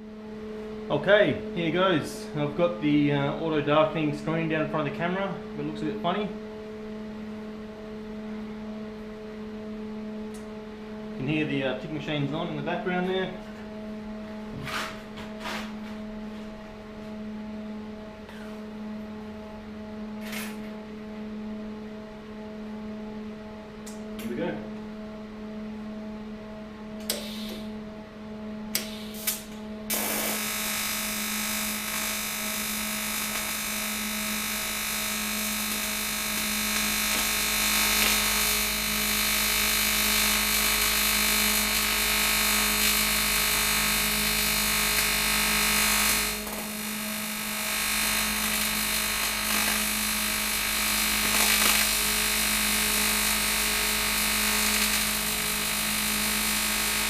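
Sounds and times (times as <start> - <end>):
welding arc buzz and hiss: 14.6 - 15.9, 20.2 - 20.8, 27.0 - 27.8, 28.7 - 57.0
welding machine hum: 28.7 - 57.0.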